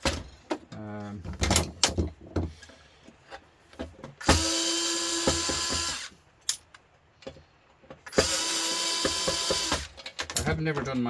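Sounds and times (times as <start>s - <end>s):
power drill whining: 4.2s - 6.2s, 8.1s - 10.0s.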